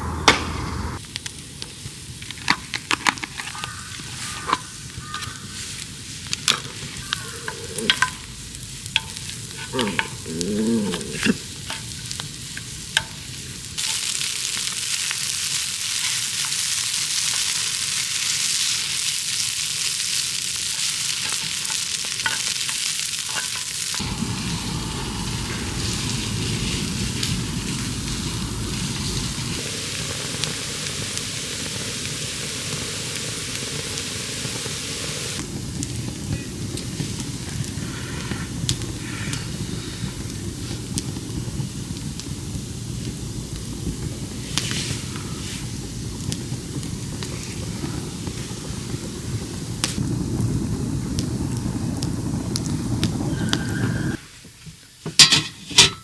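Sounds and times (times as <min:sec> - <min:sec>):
food sizzling on a griddle: 0:01.0 - 0:55.7
utensils tapping on cookware: 0:55.2 - 0:56.0.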